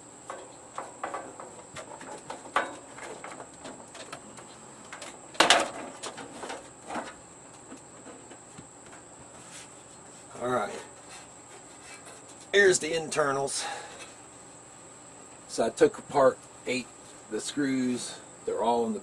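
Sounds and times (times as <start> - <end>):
plastic casing handling noise: 0.3 - 9.1.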